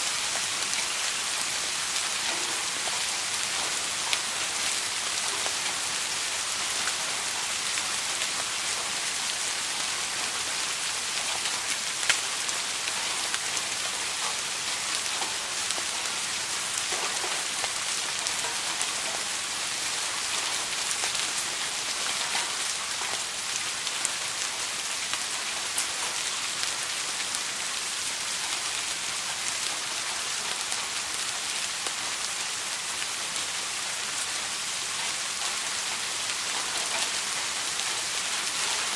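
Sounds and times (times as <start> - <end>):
rain pattering on a surface: 0.0 - 38.9.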